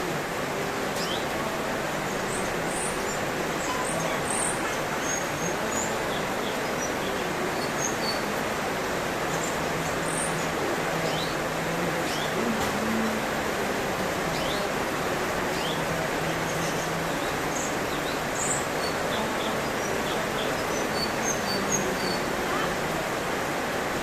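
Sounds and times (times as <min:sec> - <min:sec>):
loud steady hiss: 0:00.0 - 0:24.0.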